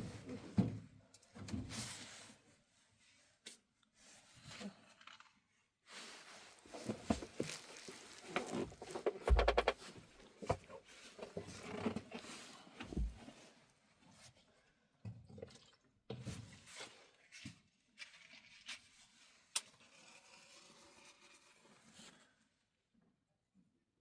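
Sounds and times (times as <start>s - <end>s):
objects knocking and clicking: 6.9s - 10.7s.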